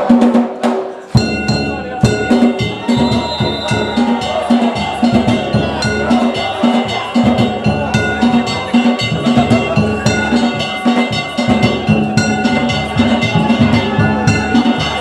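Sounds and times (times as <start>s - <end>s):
taiko drum beating: 0.0s - 15.0s
metal hand gongs clanging: 1.1s - 15.0s.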